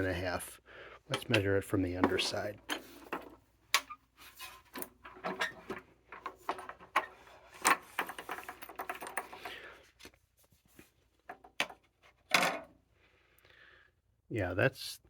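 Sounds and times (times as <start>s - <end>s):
handling knocks and clicks: 1.1s - 4.0s, 4.6s - 9.6s, 11.2s - 12.7s.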